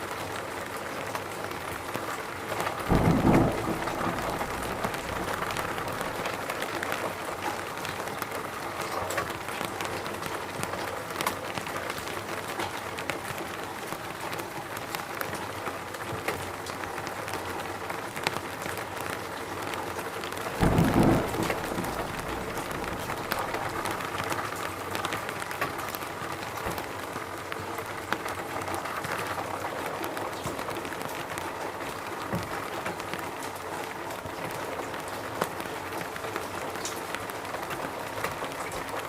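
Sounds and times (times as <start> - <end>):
rain hissing in a forest: 0.0 - 39.0
loud low thump: 2.9 - 6.4, 20.6 - 24.1
raindrop ticks: 2.9 - 17.5, 18.2 - 29.5.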